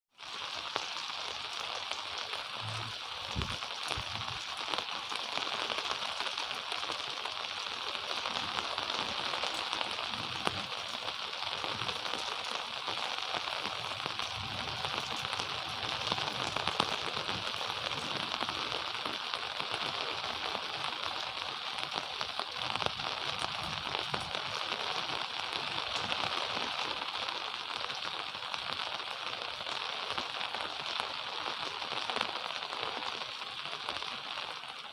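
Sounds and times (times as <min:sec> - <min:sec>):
gentle rain falling: 0:00.1 - 0:34.9.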